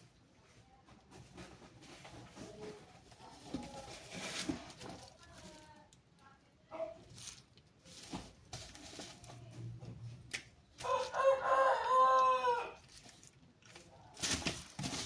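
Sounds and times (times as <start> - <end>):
rooster crowing: 10.8 - 12.8.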